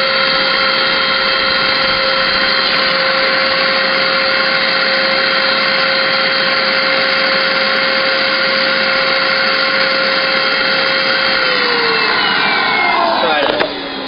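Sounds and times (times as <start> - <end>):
vacuum cleaner motor whirring: 0.0 - 14.0.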